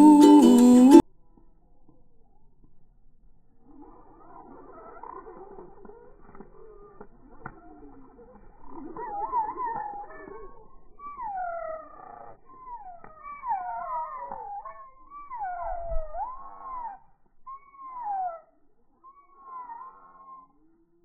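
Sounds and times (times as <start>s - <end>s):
starlings whistling: 8.7s - 20.6s.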